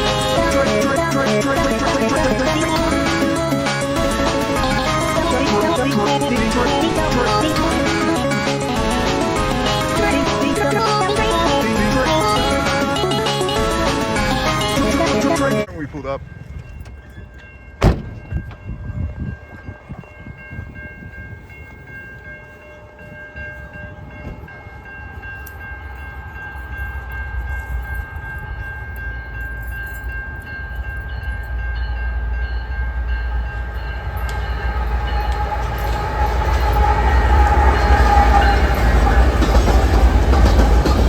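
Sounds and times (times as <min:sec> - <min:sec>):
train rumble and rail noise: 0:00.0 - 0:41.0
distant train horn: 0:33.8 - 0:41.0.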